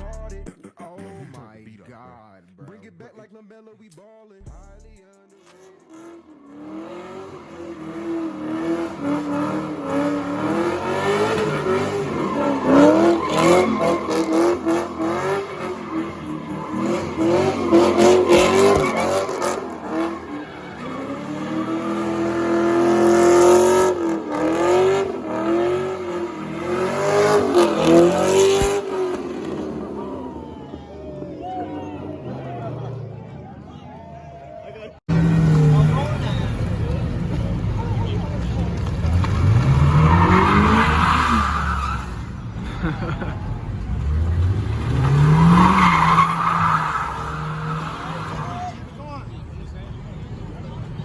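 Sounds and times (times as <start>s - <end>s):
tyres squealing: 5.4s - 33.0s, 38.6s - 42.4s, 43.9s - 49.0s
car engine revving high: 5.7s - 33.7s, 35.1s - 49.0s.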